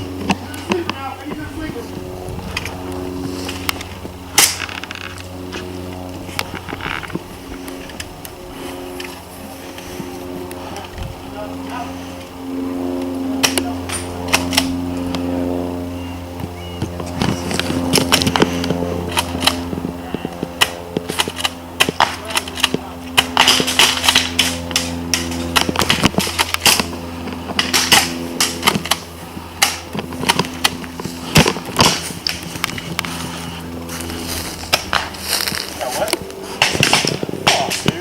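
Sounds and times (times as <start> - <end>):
steady low hum: 0.0 - 38.0
airsoft guns firing: 4.3 - 5.1, 20.6 - 26.9, 27.6 - 32.6, 36.5 - 38.0.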